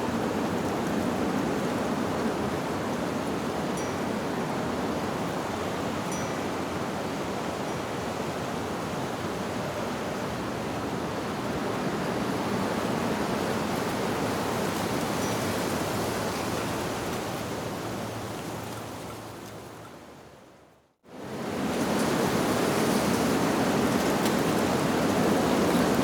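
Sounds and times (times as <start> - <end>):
wind rushing through leaves: 0.0 - 26.0
faint high wind chime: 3.6 - 8.3, 15.1 - 16.6.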